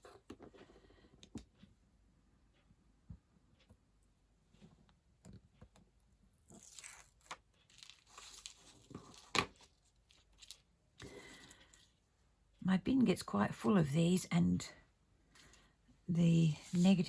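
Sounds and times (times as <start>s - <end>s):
cardstock rustling and tearing: 6.6s - 10.6s.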